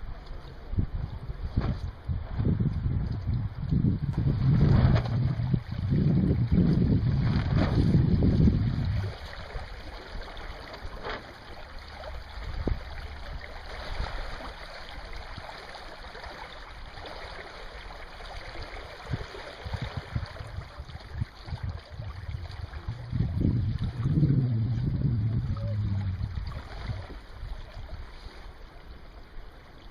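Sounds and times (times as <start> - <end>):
wind buffeting microphone: 0.0 - 9.8, 11.9 - 14.1, 18.6 - 28.2
rush of wind and water: 0.0 - 29.9.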